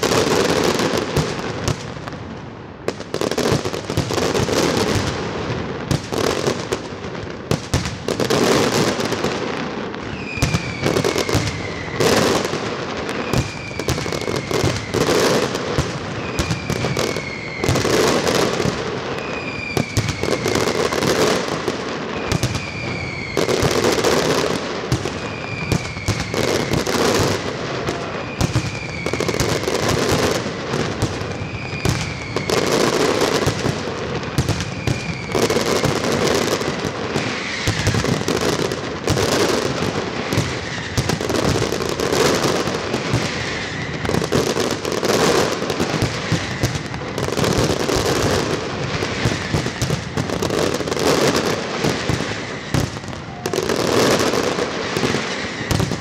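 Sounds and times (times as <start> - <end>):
falling firework whistle: 0.0 - 56.0
firework crackling: 0.0 - 56.0.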